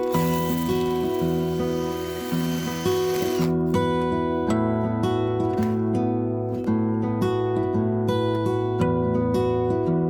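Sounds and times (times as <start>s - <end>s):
acoustic guitar: 0.0s - 10.0s.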